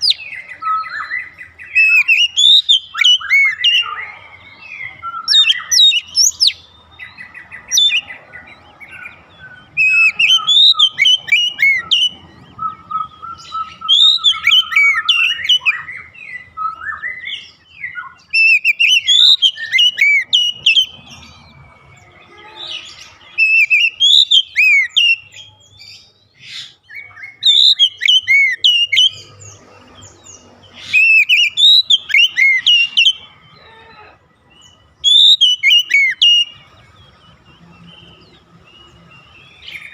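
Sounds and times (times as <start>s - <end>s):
bird singing whistled phrases: 0.0s - 8.1s, 9.0s - 21.0s, 23.3s - 29.3s, 30.8s - 33.3s, 34.6s - 36.6s.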